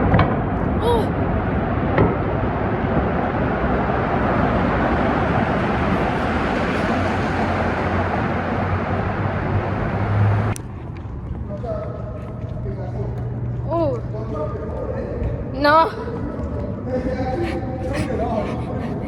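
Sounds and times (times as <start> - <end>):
loud steady rushing noise: 1.7 - 11.0.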